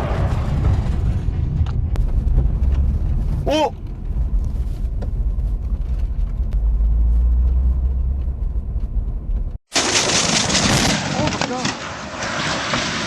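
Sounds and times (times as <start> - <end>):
loud low rumble: 0.0 - 9.6.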